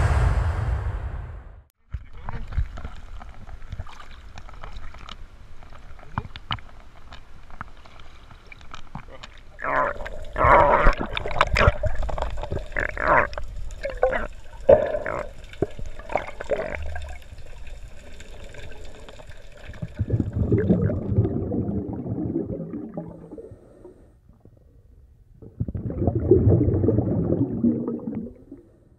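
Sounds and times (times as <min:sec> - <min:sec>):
water splashing: 0:02.0 - 0:23.6, 0:25.4 - 0:28.6
muffled underwater rumbling: 0:19.6 - 0:28.8.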